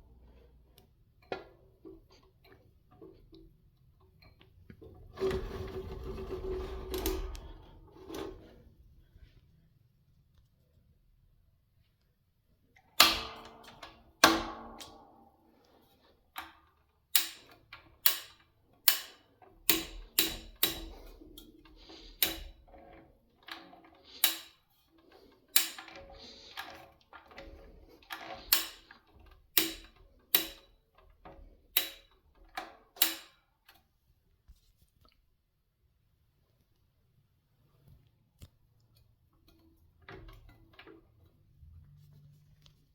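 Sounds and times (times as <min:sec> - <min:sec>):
metallic clicks and knocks: 0:16.4 - 0:33.8.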